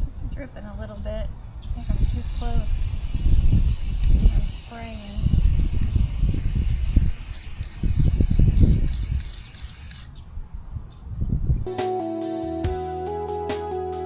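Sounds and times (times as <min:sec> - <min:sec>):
wind buffeting microphone: 0:01.0 - 0:11.7
spray paint can hissing: 0:01.7 - 0:10.1.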